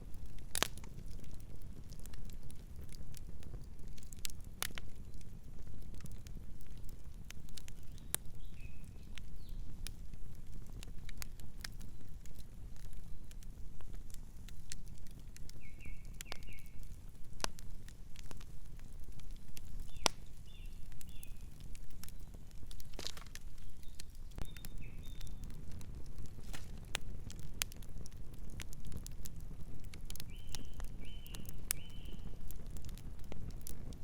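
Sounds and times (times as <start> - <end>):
campfire crackling: 0.0 - 34.0
bird chirps: 23.6 - 25.4.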